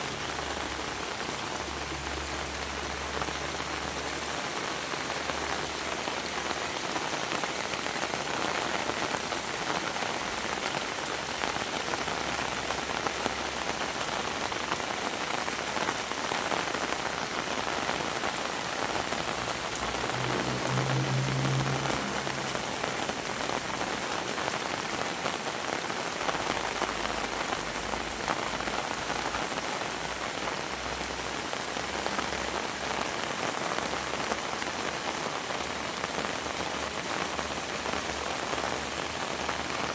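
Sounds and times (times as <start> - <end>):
heavy rain falling: 0.0 - 39.9
low droning hum: 19.8 - 24.0.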